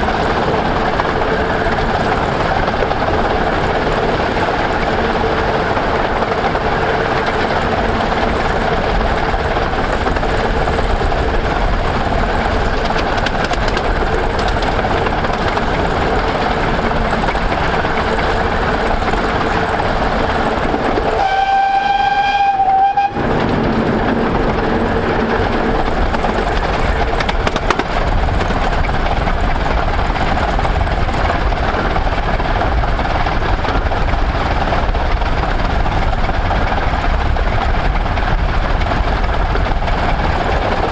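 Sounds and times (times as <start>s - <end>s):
steam train rumbling on rails: 0.0s - 40.9s
steam whistle blast: 21.2s - 23.2s.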